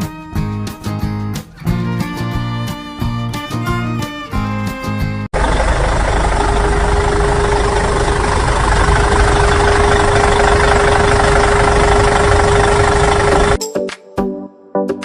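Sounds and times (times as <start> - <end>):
vehicle engine idling: 5.3 - 13.6.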